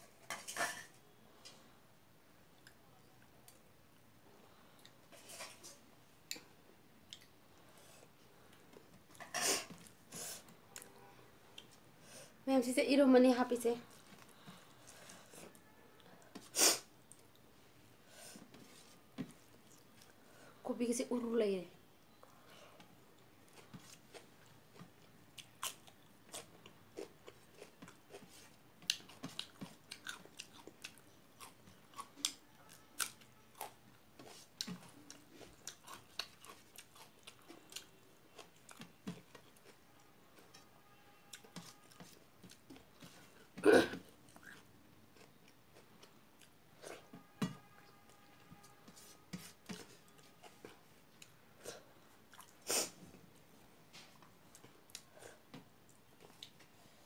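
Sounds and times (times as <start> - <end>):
woman chewing: 23.2 - 43.6, 44.2 - 47.1, 49.3 - 52.9.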